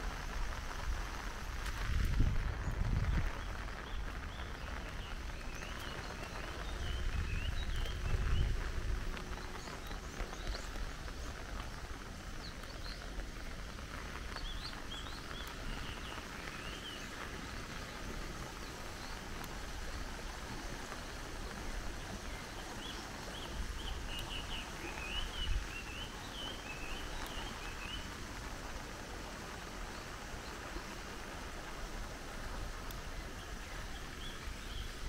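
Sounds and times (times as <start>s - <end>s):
steady outdoor hiss: 0.0s - 35.0s
small birds chirping: 2.6s - 28.3s.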